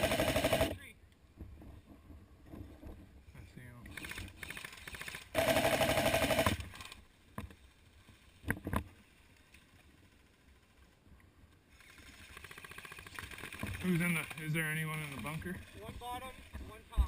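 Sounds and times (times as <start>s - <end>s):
airsoft gun full-auto burst: 0.0s - 0.8s, 3.9s - 7.0s, 11.8s - 15.2s.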